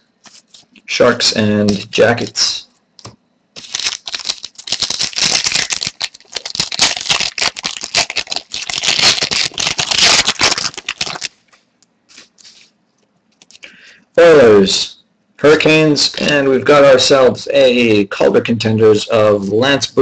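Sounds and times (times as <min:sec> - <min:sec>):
card pack wrapper crackling: 0:03.6 - 0:11.4.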